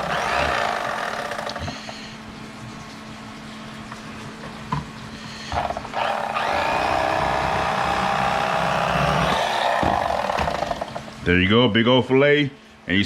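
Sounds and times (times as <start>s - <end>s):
electric fillet knife running: 0.0s - 1.8s, 5.6s - 11.1s.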